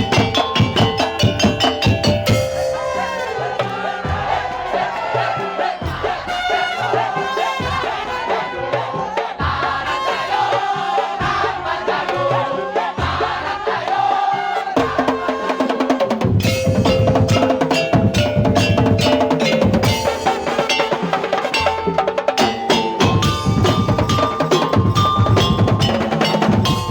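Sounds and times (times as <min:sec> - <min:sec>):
melody: 0:00.0 - 0:03.5, 0:16.4 - 0:26.9
drum and wood-block beats: 0:00.0 - 0:26.9.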